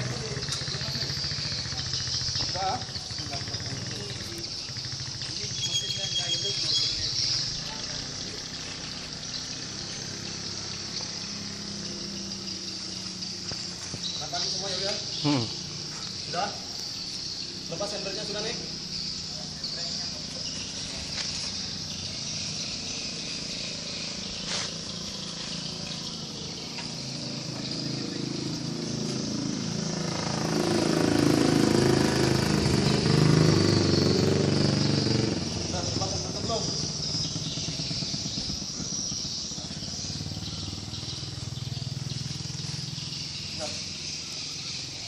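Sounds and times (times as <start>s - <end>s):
vehicle engine idling: 0.0s - 45.0s
high chirring: 0.2s - 30.0s.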